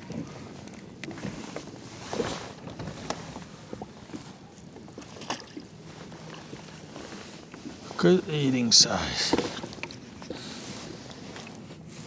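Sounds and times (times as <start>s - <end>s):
knocks and clicks on boat: 0.0s - 5.7s
water sloshing against kayak hull: 2.1s - 8.4s.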